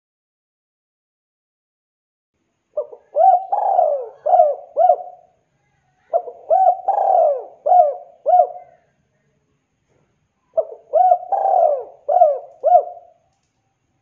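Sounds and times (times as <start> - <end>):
dove cooing: 2.8 - 5.4, 6.0 - 9.0, 10.5 - 13.2.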